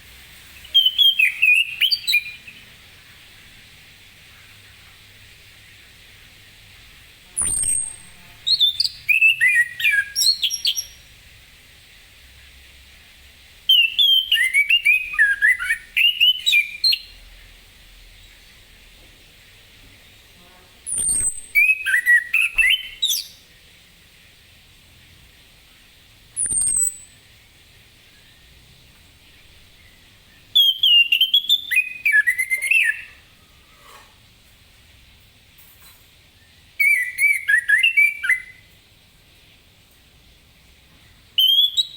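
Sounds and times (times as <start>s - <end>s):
thrush singing whistled notes: 0.6s - 2.7s, 7.3s - 11.0s, 13.7s - 17.2s, 20.9s - 23.4s, 26.4s - 27.3s, 29.7s - 33.3s, 36.8s - 38.7s, 41.4s - 41.9s
high sharply falling bird notes: 7.4s - 11.0s, 26.4s - 27.1s.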